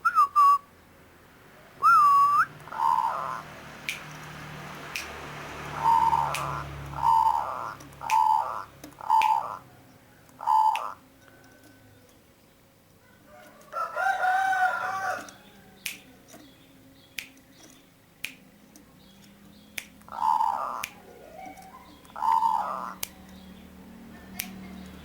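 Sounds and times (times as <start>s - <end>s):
dove cooing: 1.8s - 3.6s, 5.6s - 12.2s, 20.1s - 23.1s
sharp clicks: 3.8s - 5.3s, 6.1s - 9.6s, 15.2s - 23.4s.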